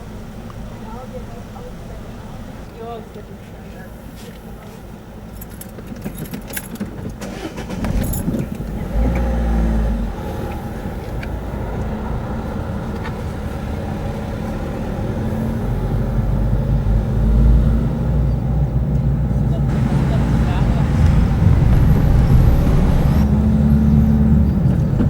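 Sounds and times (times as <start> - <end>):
cars driving past: 8.6 - 25.0.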